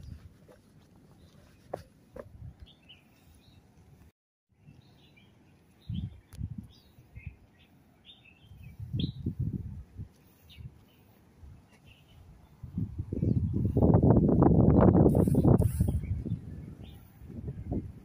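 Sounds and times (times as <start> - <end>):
small birds chirping: 2.6 - 3.7, 4.6 - 9.5, 10.1 - 13.9.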